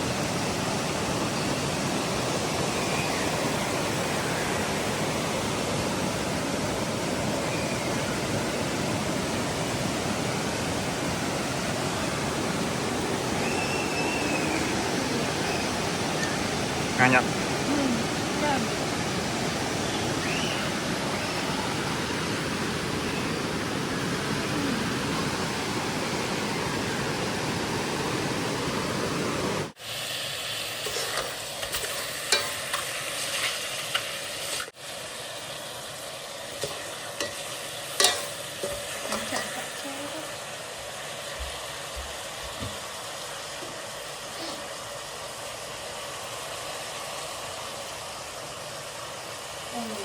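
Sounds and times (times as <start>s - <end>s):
waterfall rushing: 0.0s - 30.1s.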